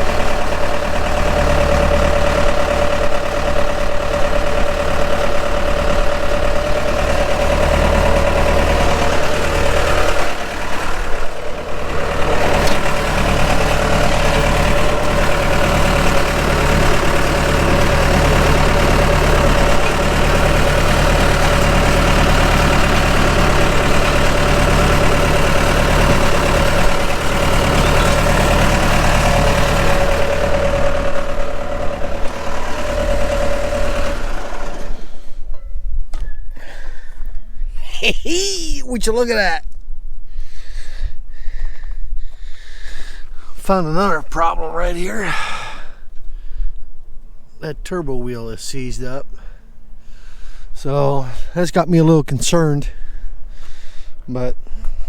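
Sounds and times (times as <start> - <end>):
engine idling with whine: 0.0 - 37.6.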